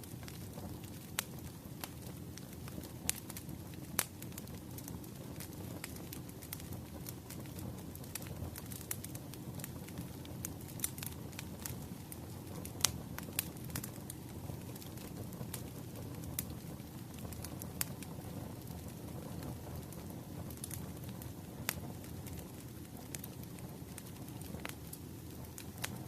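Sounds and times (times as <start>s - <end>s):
firewood crackling and popping: 0.0s - 26.0s
low rush of fire: 0.0s - 26.0s.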